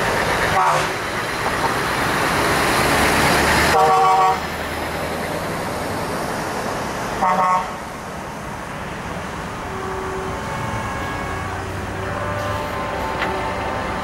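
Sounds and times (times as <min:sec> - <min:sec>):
traffic engine and road noise: 0:00.0 - 0:14.0
truck horn blast: 0:00.5 - 0:01.0, 0:03.7 - 0:04.4, 0:07.2 - 0:07.8, 0:09.7 - 0:14.0.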